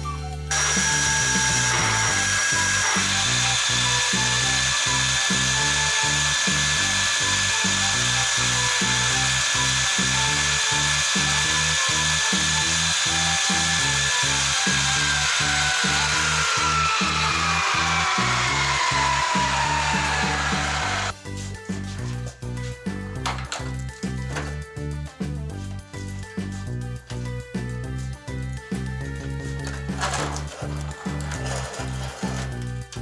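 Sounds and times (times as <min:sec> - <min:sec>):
background music with beat: 0:00.0 - 0:33.0
power tool whining: 0:00.5 - 0:21.2, 0:29.1 - 0:33.0.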